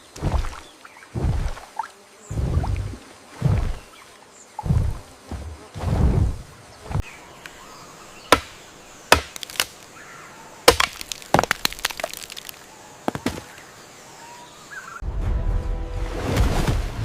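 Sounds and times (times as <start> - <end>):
sharp knocks and cracks: 8.3 - 9.8, 10.7 - 13.5.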